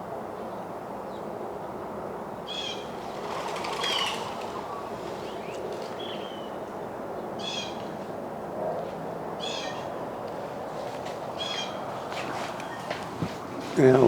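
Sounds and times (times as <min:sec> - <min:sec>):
low background noise: 0:00.0 - 0:14.0
harsh high bird calls: 0:02.5 - 0:08.0, 0:09.4 - 0:10.0, 0:11.4 - 0:13.0.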